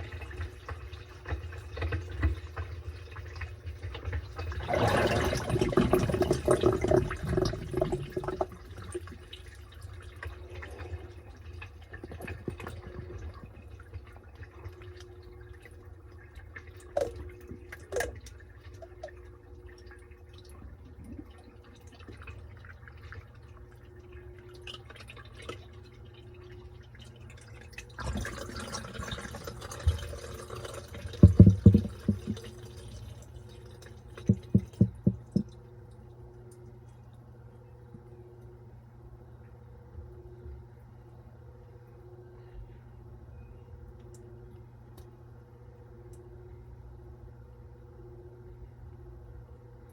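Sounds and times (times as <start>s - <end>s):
water rushing into washing machine: 0.0s - 37.0s
drips and clicks: 10.2s - 28.4s, 29.4s - 37.2s.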